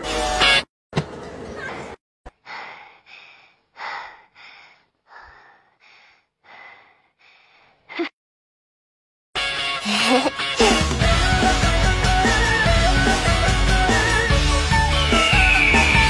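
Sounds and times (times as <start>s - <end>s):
cartoon character breathing hard: 2.4s - 7.9s.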